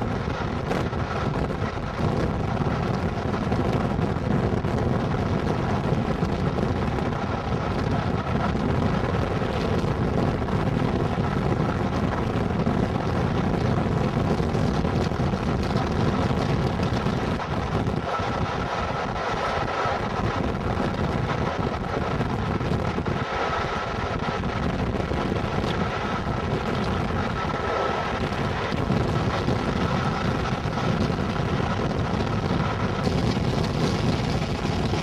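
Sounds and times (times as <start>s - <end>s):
train wheels on track: 0.0s - 35.0s
wind rushing: 0.0s - 35.0s.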